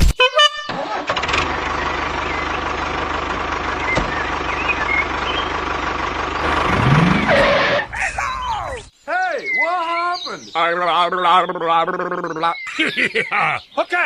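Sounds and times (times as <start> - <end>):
motor running steadily: 1.8 - 7.9.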